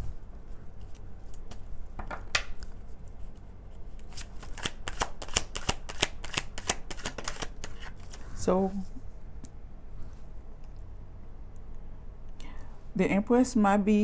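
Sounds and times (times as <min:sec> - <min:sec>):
cards being shuffled: 0:02.4 - 0:08.3.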